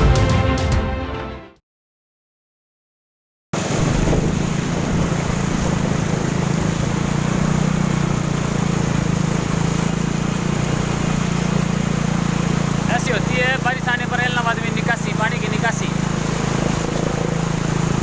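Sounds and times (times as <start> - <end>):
wind noise on microphone: 3.6 - 7.0
low motor hum: 3.6 - 18.0.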